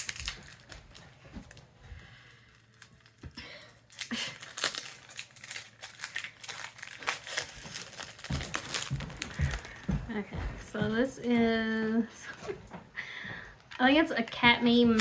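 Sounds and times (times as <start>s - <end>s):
packaging crinkling and tearing: 0.0s - 9.9s.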